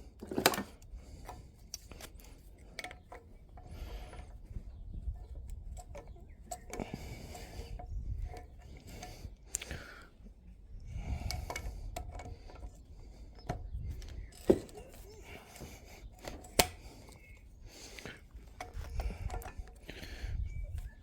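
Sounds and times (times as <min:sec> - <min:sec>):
metal tools clinking: 0:11.2 - 0:17.5, 0:18.2 - 0:21.0.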